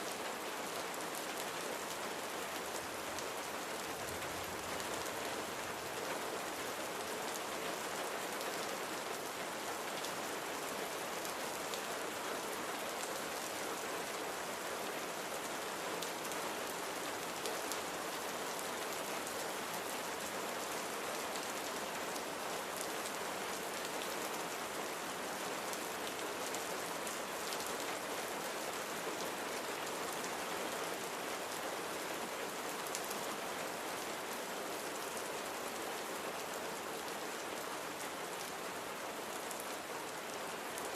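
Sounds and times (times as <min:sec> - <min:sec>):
rain pattering on a surface: 0:00.0 - 0:40.9.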